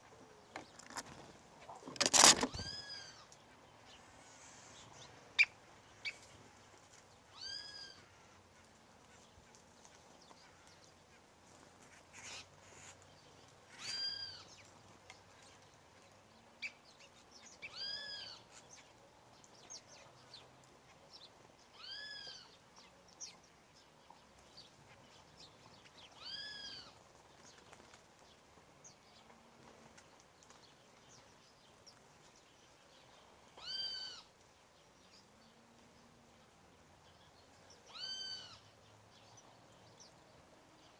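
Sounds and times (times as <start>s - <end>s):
faint clicks and chirps: 29.9s - 32.1s.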